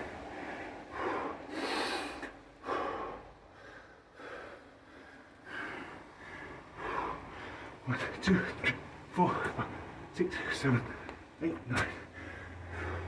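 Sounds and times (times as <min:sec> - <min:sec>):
man breathing hard: 0:00.0 - 0:07.8, 0:12.0 - 0:13.0.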